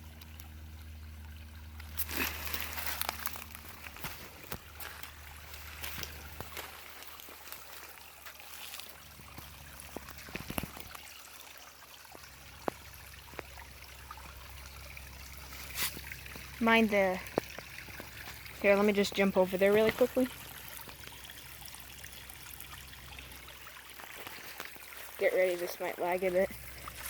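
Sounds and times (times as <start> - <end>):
creek trickling over stone: 0.0 - 27.0.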